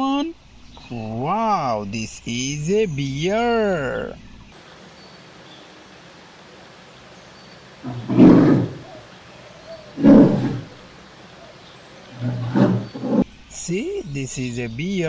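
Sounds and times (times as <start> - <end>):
bear roaring: 7.8 - 10.8, 11.4 - 13.2.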